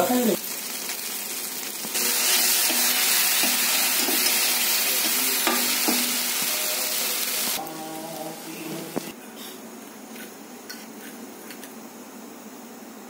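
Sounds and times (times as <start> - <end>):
water sizzling in hot pan: 0.0 - 9.1
metal spatula scraping a pan: 2.0 - 6.5.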